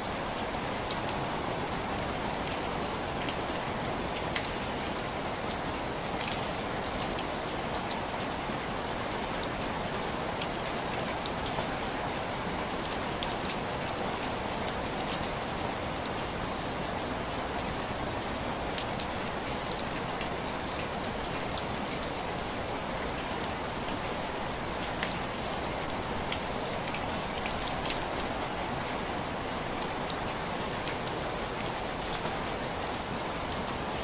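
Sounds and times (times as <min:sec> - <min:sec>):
rain on window glass: 0:00.1 - 0:34.0.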